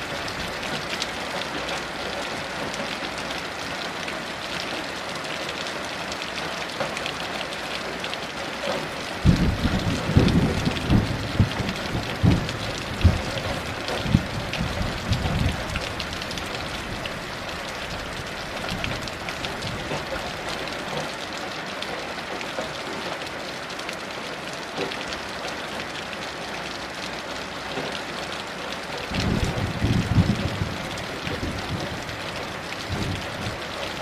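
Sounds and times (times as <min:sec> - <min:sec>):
heavy rain falling: 0:00.0 - 0:34.0
distant thunder rumble: 0:09.2 - 0:17.0, 0:29.1 - 0:34.0.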